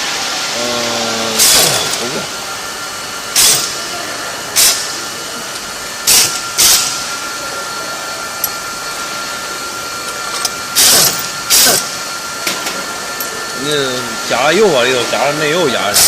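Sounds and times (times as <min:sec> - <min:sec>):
loud noisy bursts: 0:00.0 - 0:12.6
rebar cutting machine whining: 0:00.4 - 0:16.0.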